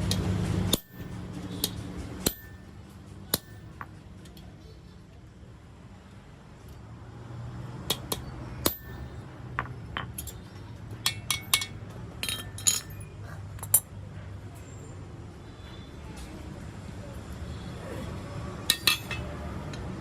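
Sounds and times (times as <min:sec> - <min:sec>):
hand tools clinking on steel: 0:00.1 - 0:04.4, 0:07.9 - 0:13.9, 0:18.6 - 0:19.9.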